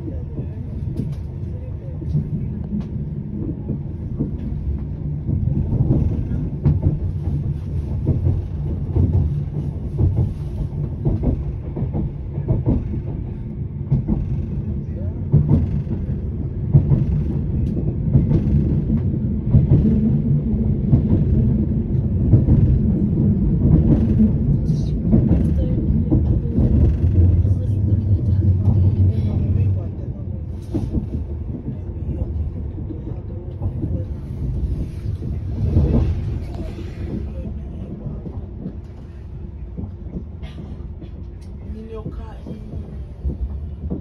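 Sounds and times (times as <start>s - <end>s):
train rumbling inside carriage: 0.0s - 44.0s
wheels knocking on rails: 2.1s - 29.7s.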